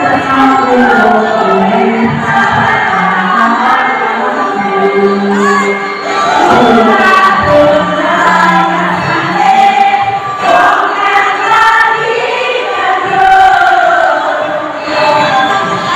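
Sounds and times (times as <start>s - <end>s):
choir singing: 0.0s - 15.9s.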